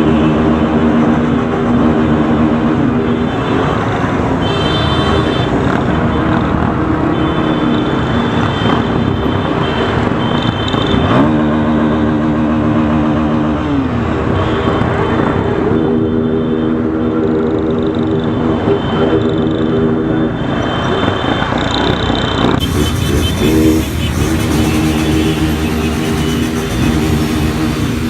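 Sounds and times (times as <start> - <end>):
motorcycle engine running: 22.6 - 28.0.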